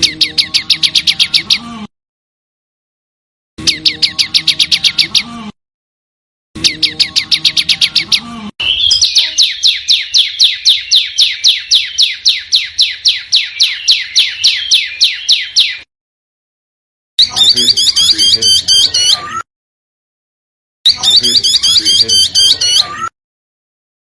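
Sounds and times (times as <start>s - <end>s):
songbird chirps and whistles: 0.0s - 1.6s, 3.6s - 5.3s, 6.6s - 15.9s, 17.2s - 19.3s, 20.9s - 23.1s.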